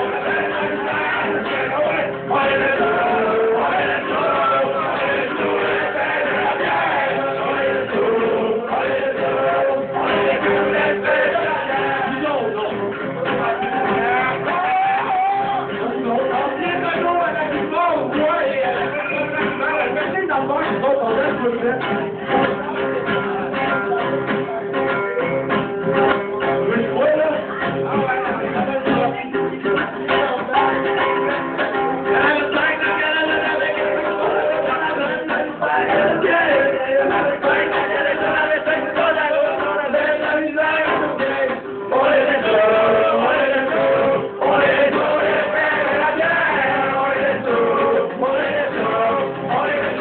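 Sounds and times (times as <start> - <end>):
men singing in harmony: 0.0 - 20.3, 32.0 - 50.0
live band music: 0.0 - 50.0
strummed acoustic guitar: 0.0 - 50.0.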